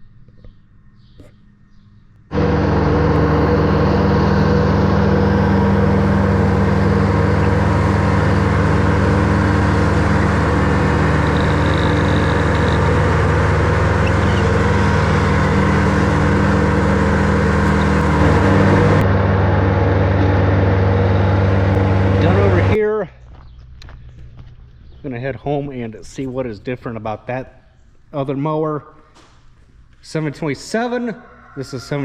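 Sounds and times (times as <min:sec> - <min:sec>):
tractor engine mowing grass: 0:02.3 - 0:22.8.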